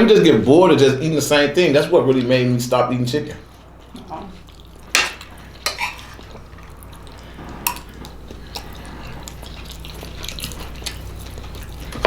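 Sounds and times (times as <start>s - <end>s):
wet chewing and mouth smacking: 3.5s - 12.0s.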